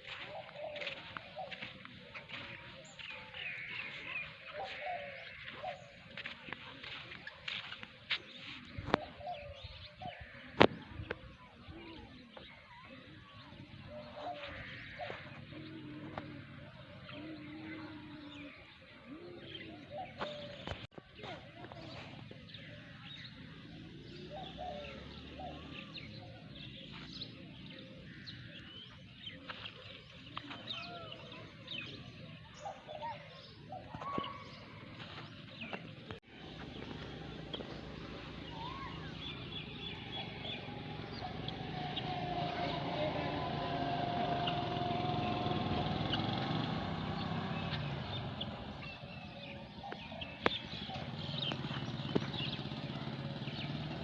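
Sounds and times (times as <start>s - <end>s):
birds calling: 0.0s - 54.0s.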